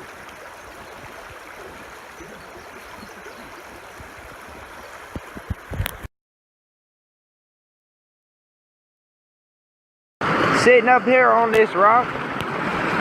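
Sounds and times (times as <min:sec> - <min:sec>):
stream running over rocks: 0:00.0 - 0:06.1.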